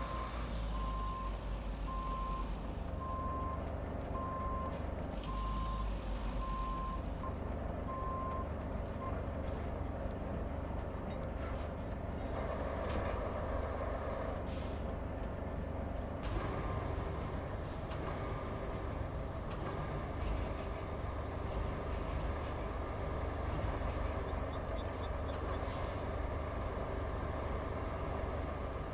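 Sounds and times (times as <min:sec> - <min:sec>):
heavy truck engine running: 0:00.0 - 0:28.9
reversing alarm beeping: 0:16.4 - 0:28.9.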